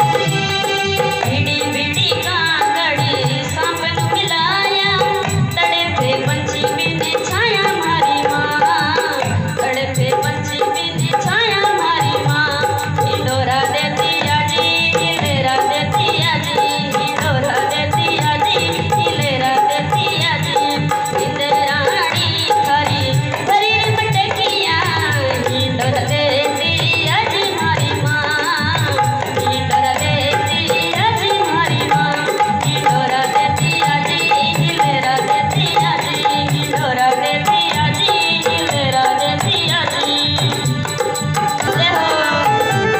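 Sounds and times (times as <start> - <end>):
live folk music: 0.0 - 3.5, 32.9 - 42.9
rattling percussion: 0.0 - 42.9.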